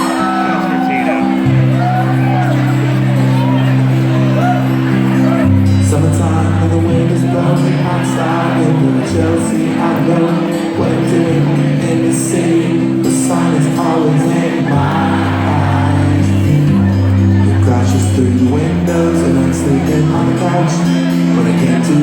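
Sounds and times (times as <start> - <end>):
bass and guitar notes: 0.0 - 22.0.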